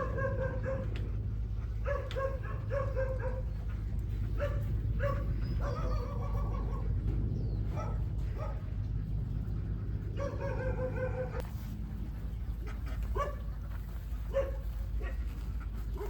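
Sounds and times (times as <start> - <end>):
dog barking: 0.0 - 1.0, 1.8 - 3.5, 4.4 - 6.9, 7.8 - 8.6, 10.2 - 11.4, 13.1 - 13.4, 14.3 - 15.2
low hum: 0.0 - 16.0.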